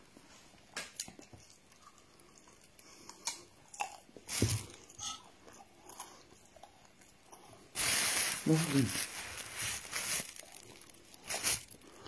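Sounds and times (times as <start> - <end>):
person chewing: 1.0 - 7.8, 9.4 - 12.0.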